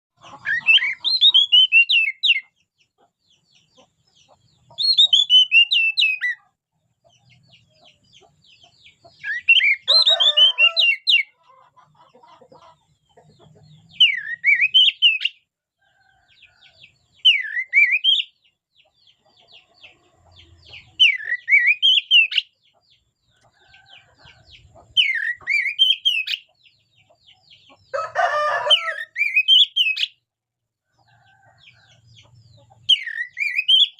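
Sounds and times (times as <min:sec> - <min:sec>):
bird singing whistled phrases: 0:00.6 - 0:02.4, 0:04.8 - 0:06.3, 0:09.2 - 0:11.2, 0:14.0 - 0:15.4, 0:17.3 - 0:18.3, 0:21.0 - 0:22.4, 0:29.1 - 0:30.2, 0:32.9 - 0:33.9.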